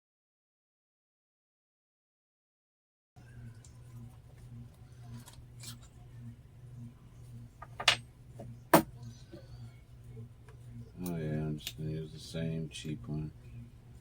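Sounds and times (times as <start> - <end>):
steady low hum: 3.2 - 14.0.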